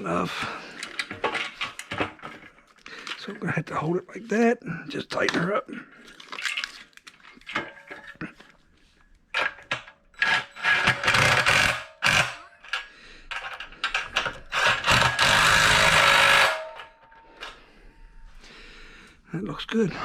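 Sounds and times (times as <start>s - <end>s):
power drill driving screws: 10.2s - 12.4s, 14.1s - 16.9s.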